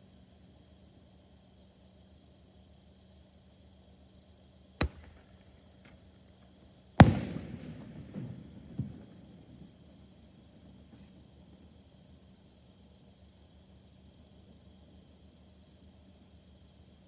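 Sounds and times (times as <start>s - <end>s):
insects chirring: 4.6s - 17.0s
fireworks bangs echoing: 4.8s - 6.0s, 7.0s - 11.1s.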